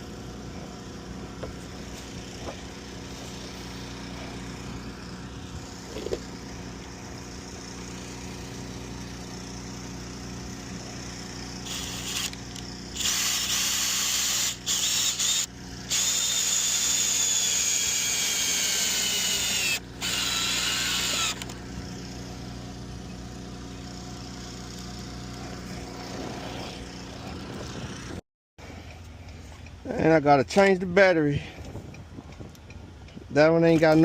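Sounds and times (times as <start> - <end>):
cordless drill whining: 11.5 - 21.6.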